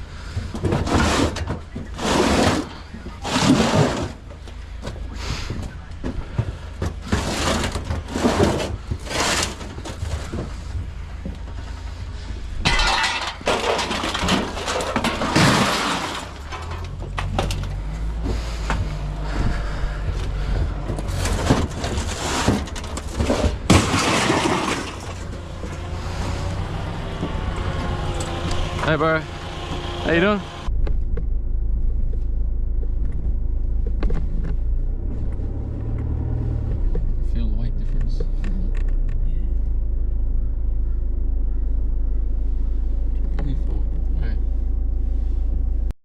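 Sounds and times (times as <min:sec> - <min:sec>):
engine humming: 0:00.0 - 0:46.0
scrap metal crashing onto pile: 0:12.6 - 0:17.5, 0:21.1 - 0:25.4.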